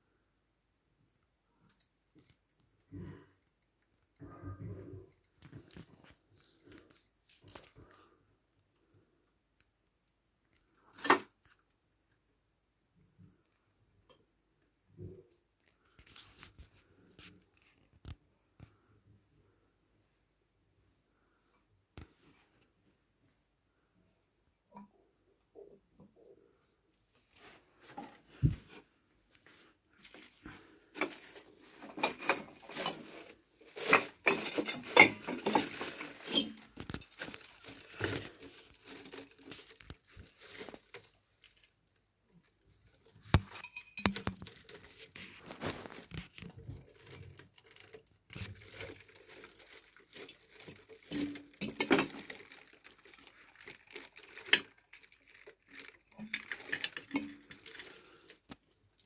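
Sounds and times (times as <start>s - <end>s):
cat and mice scuffling: 27.2s - 59.0s.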